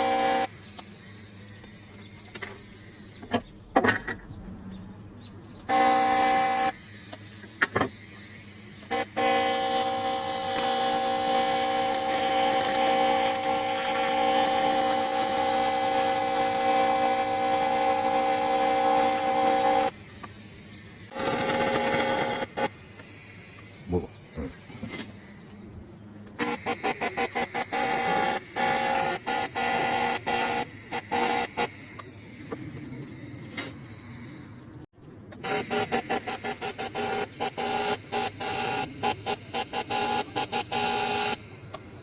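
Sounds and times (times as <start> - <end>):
welding arc buzzing: 0.0 - 0.8, 5.7 - 25.3, 26.4 - 32.1, 35.4 - 42.0.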